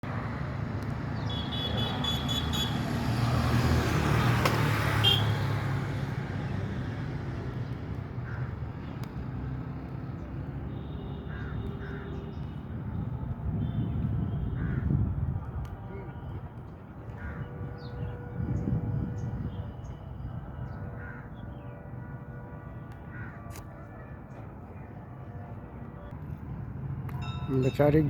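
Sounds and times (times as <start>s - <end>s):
passing vehicle: 0.0s - 20.8s.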